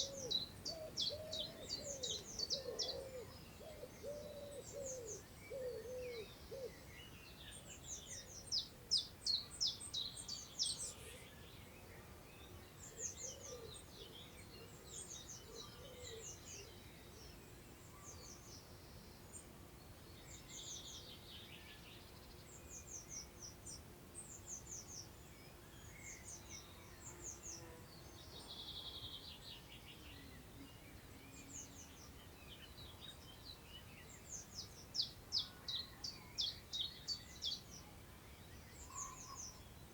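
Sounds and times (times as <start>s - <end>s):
low hooting or cooing: 0.0s - 6.7s
birds singing: 0.0s - 19.4s, 20.1s - 39.9s
faint outdoor background: 0.0s - 39.9s.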